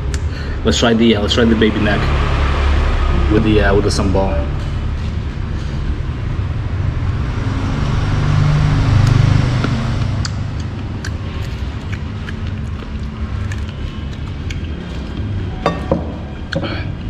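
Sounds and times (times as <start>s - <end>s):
road traffic rumbling: 0.0s - 17.0s
vehicle passing: 0.5s - 17.0s.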